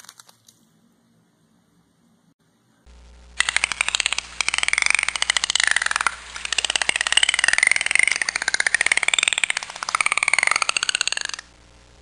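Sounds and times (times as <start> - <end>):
dolphin clicks: 3.4 - 11.5.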